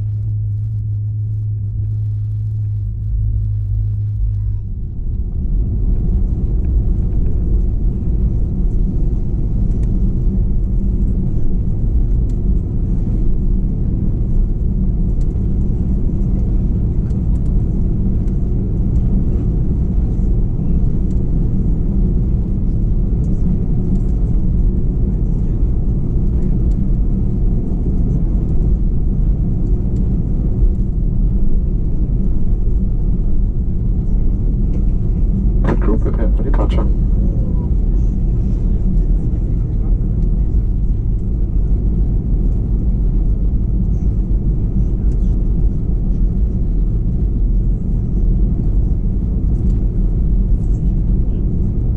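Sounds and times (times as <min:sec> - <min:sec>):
jet engines idling: 0:31.4 - 0:51.8.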